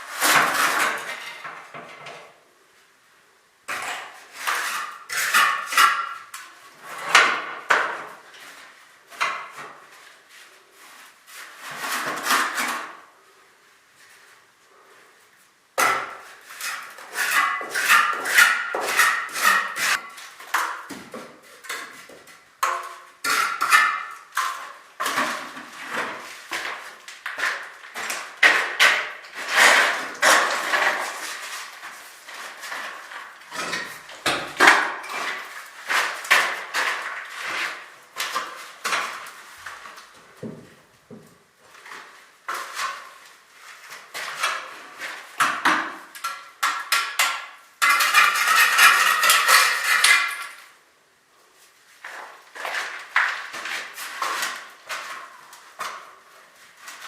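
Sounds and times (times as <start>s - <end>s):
hand tools knocking and scraping: 3.7s - 8.2s, 15.8s - 43.2s, 43.9s - 50.6s.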